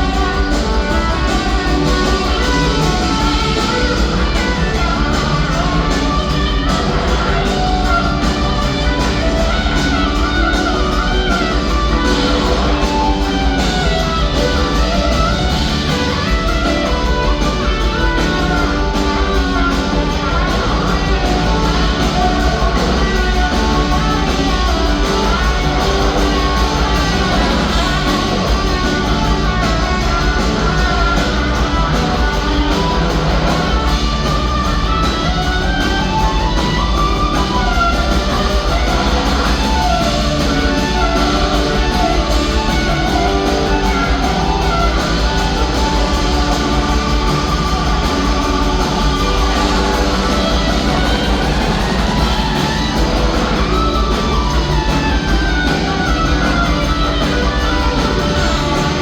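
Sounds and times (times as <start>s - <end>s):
electric guitar: 0.0s - 59.0s
live rock band playing: 0.0s - 59.0s.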